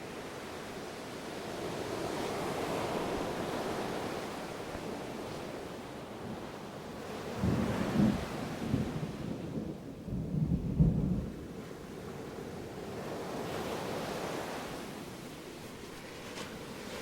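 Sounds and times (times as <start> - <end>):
ocean waves washing: 0.0 - 9.9, 11.5 - 17.0
distant thunder rumbling: 7.3 - 11.7.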